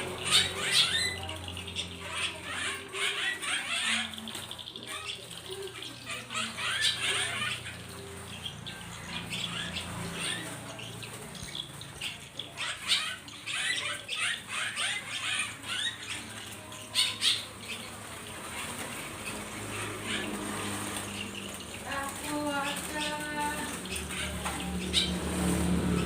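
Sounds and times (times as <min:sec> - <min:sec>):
caged birds chirping: 0:00.0 - 0:26.0
wings fluttering: 0:15.4 - 0:26.0.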